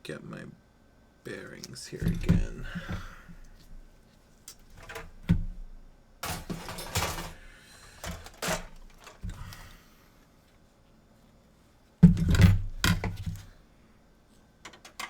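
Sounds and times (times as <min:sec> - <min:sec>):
tools clicking on a workbench: 0:06.2 - 0:09.4, 0:14.6 - 0:15.0.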